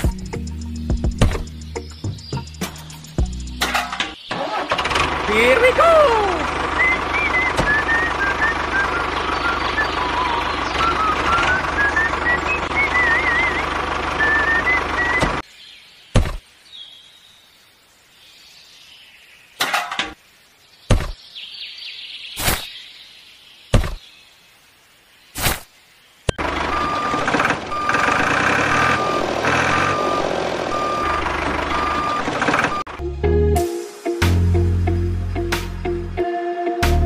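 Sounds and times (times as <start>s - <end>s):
tractor engine running: 2.8s - 15.4s, 26.4s - 33.0s
knocks and clicks on sand: 20.9s - 21.2s, 23.7s - 24.0s.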